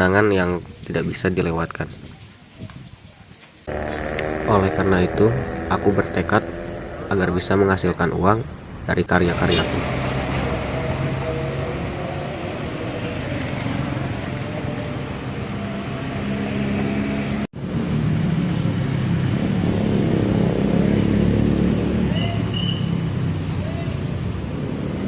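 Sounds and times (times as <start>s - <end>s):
vehicle engine running: 3.7s - 8.7s.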